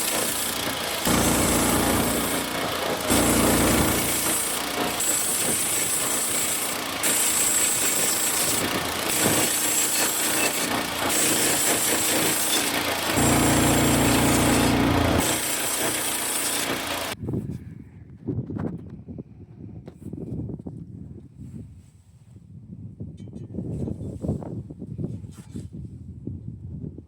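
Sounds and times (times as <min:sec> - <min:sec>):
band saw blade cutting log: 0:00.0 - 0:17.2
small gas engine at high speed: 0:00.0 - 0:17.2.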